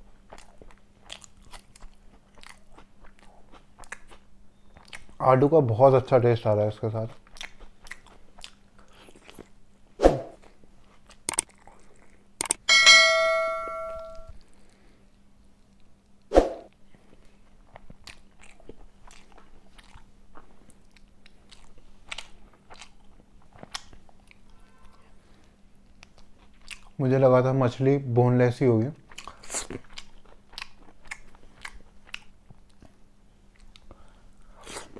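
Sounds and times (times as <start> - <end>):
chewing: 0.2 - 5.2, 7.1 - 9.6, 10.4 - 12.3, 16.9 - 27.0, 29.0 - 34.9
metal clang ringing: 12.6 - 14.3.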